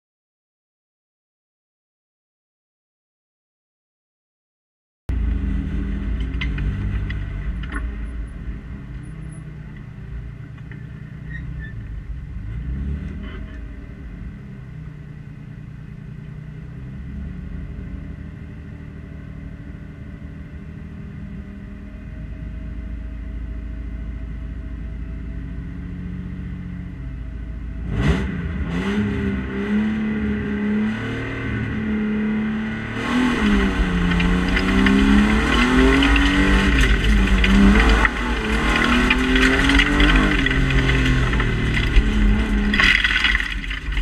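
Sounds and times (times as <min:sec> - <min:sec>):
car engine idling: 0:33.5 - 0:44.0.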